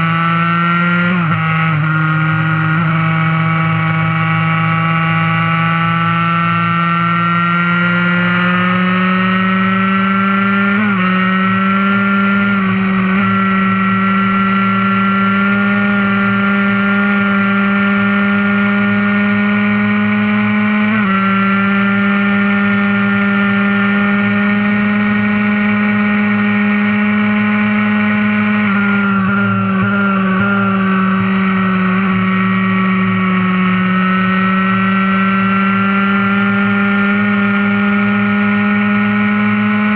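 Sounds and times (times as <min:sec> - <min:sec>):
two-stroke engine revving high: 0:00.0 - 0:39.9.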